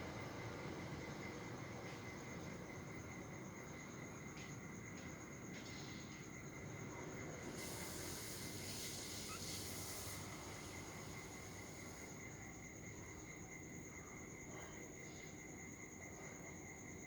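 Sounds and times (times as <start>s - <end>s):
insect trill: 0.1s - 17.0s
hiss: 7.4s - 12.6s.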